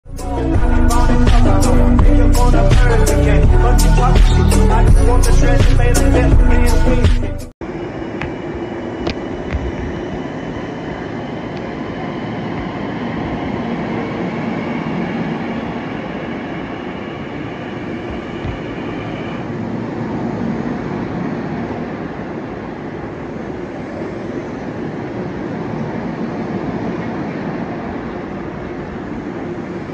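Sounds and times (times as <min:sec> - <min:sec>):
thin high whine: 0:07.6 - 0:24.9
train wheels and motors rumbling: 0:07.6 - 0:29.9.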